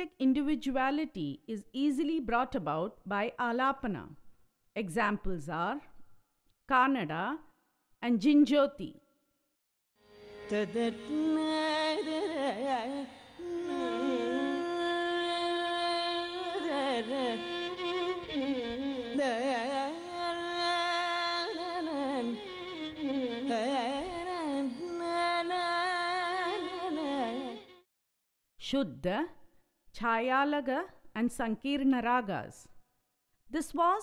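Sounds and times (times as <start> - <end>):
indian classical melodic line: 10.0 - 27.8.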